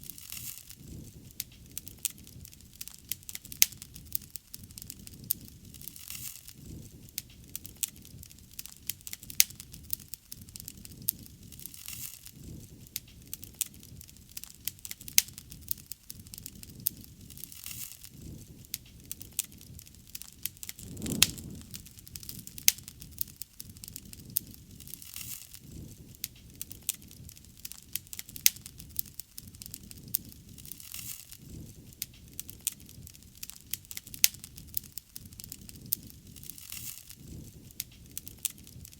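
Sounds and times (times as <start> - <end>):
bonfire crackling: 18.1 - 38.9
low rumble of flames: 18.2 - 25.0.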